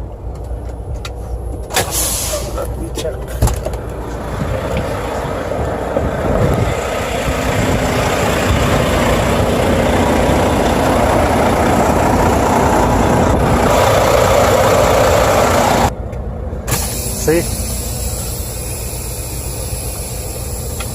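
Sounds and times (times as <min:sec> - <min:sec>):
diesel engine idling: 0:00.0 - 0:20.9
loud rushing noise: 0:03.4 - 0:19.2.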